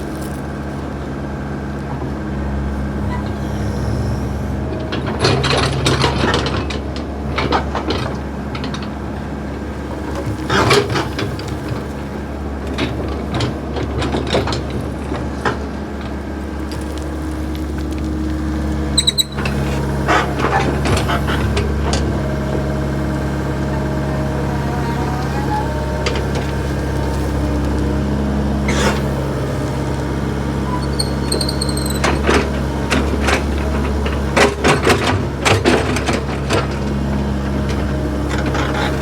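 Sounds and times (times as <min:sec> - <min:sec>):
diesel engine running: 0:00.0 - 0:39.0
high squeak: 0:19.0 - 0:19.5, 0:30.6 - 0:32.2.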